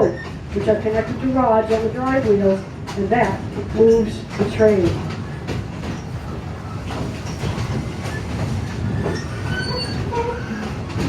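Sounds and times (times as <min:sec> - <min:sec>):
train wheels clattering on rail: 0:00.0 - 0:11.0
high wheel squeals: 0:05.2 - 0:11.0.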